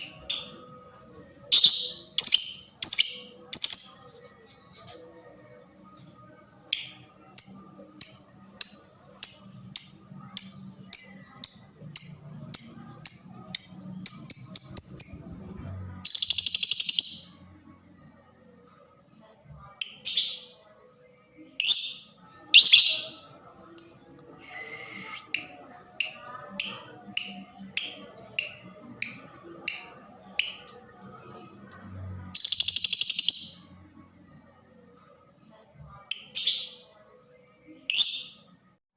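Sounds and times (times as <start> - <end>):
bird chirping: 1.5 - 18.3, 19.2 - 23.4, 32.2 - 33.8.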